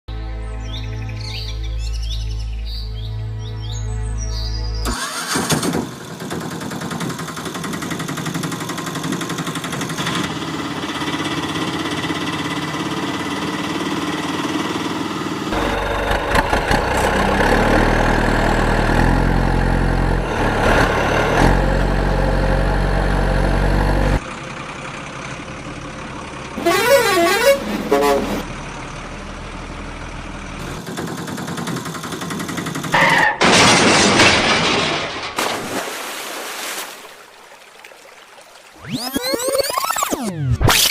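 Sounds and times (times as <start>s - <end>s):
truck engines running: 4.8s - 35.4s
truck horns sounding: 15.5s - 17.7s, 26.6s - 28.6s
warbling horn tone: 26.6s - 28.4s.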